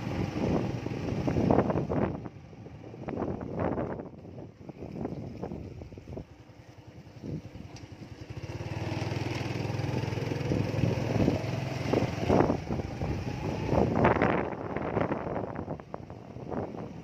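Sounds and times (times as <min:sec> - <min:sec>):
small engine running: 0:06.5 - 0:14.5.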